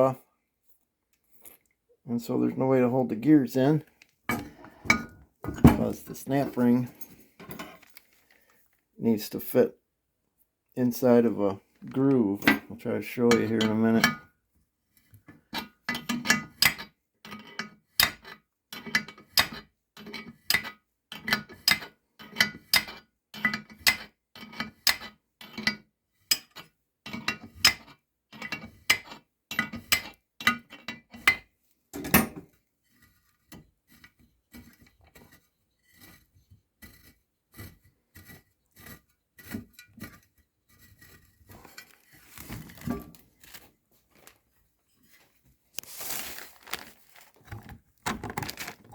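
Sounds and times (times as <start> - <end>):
short rustle: 41.6 - 47.6.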